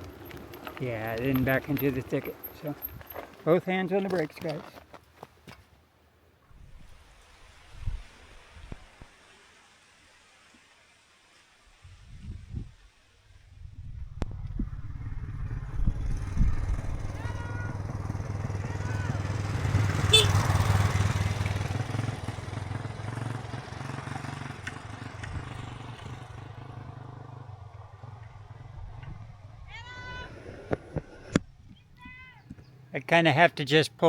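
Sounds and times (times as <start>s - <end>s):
motorcycle engine passing: 0.0s - 3.5s, 13.8s - 31.6s.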